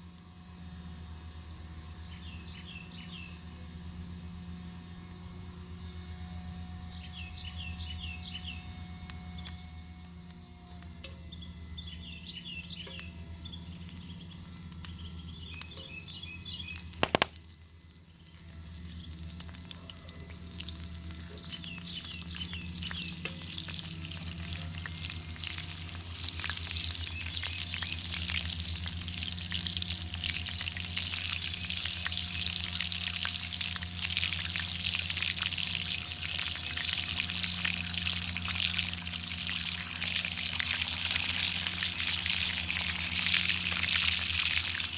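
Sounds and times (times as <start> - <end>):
faint bird chirps: 6.8 - 17.0, 19.6 - 23.6
bacon sizzling over fire: 12.6 - 44.9.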